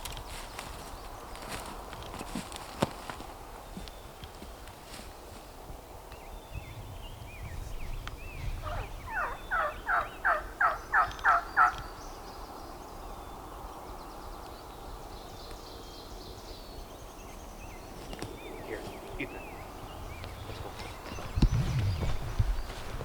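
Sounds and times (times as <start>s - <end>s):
faint songbird chirps: 0.0s - 23.0s
turkey yelping: 8.6s - 11.9s.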